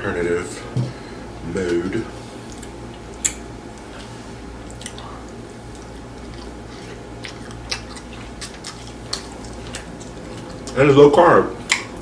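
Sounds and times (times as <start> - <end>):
steady low hum: 0.0 - 12.0
chewing with wet mouth clicks: 2.5 - 10.8, 11.6 - 12.0.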